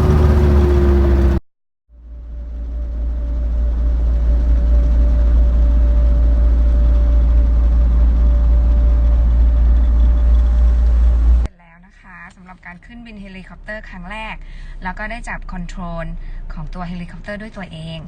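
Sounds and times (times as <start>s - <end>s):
helicopter engine and rotor drone: 0.0s - 1.4s, 2.7s - 11.5s.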